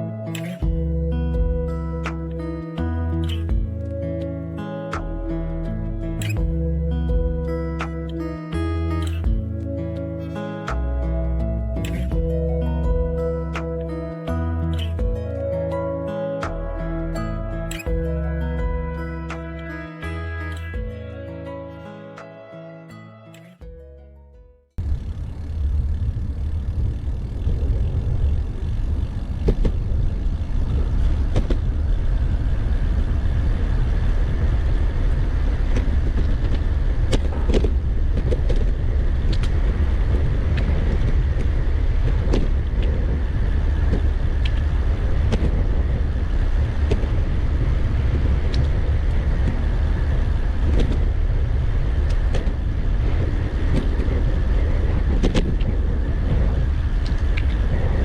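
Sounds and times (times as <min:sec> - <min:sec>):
road traffic noise: 0:00.0 - 0:22.5, 0:24.8 - 0:58.0
wind buffeting microphone: 0:24.8 - 0:58.0.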